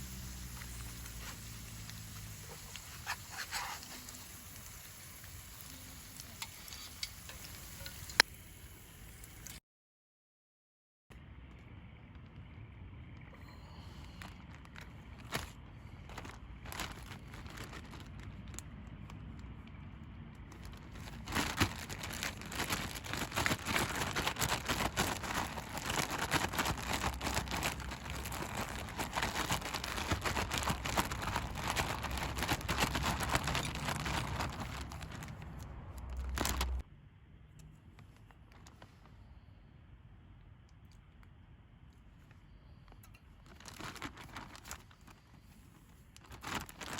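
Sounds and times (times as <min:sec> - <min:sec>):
food sizzling in hot oil: 0:00.0 - 0:09.5.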